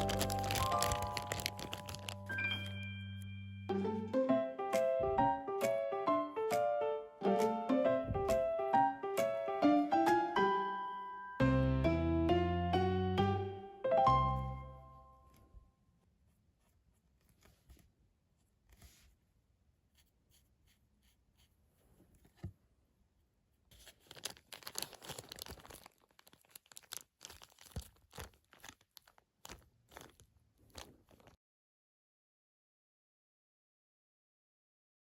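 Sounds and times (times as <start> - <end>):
crinkling and rustling: 0.0 - 2.8, 23.7 - 31.4.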